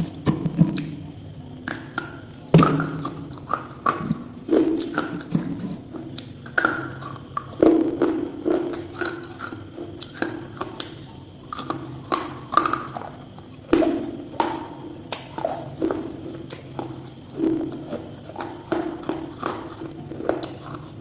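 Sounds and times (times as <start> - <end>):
hard objects knocking: 2.5 - 3.1.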